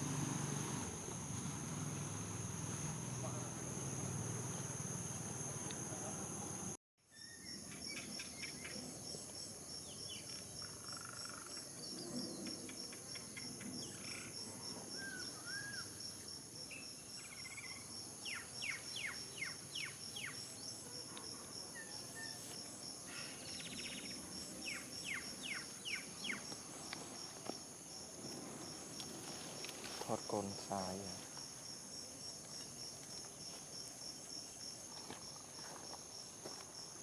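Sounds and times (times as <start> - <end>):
crickets droning: 0.0 - 37.0
bird chirps: 23.2 - 26.4.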